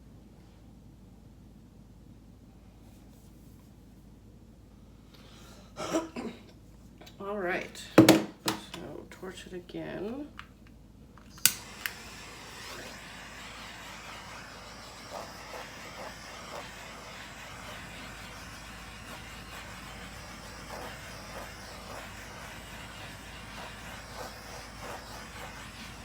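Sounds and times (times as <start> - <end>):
torch flame hissing: 11.3 - 26.0.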